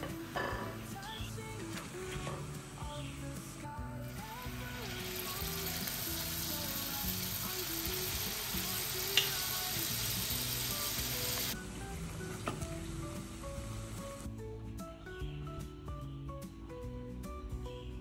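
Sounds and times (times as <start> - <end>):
batter sizzling in hot oil: 4.0 - 11.6.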